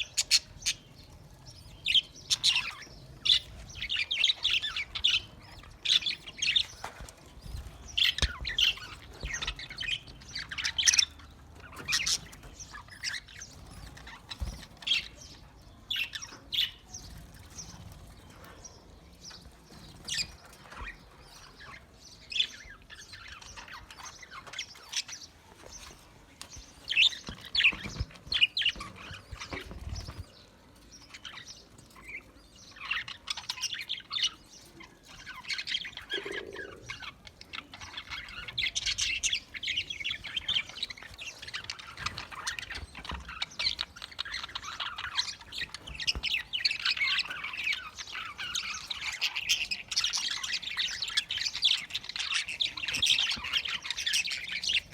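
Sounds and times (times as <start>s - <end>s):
budgerigars chirping: 0.0s - 0.9s, 1.5s - 15.2s, 31.1s - 54.9s.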